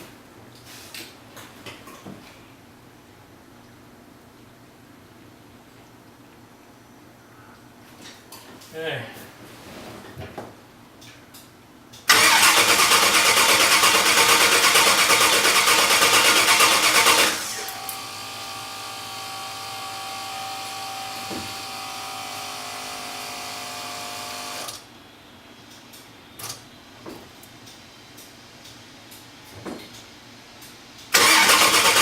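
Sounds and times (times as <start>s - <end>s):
car engine cranking: 12.1s - 18.2s, 31.1s - 32.0s.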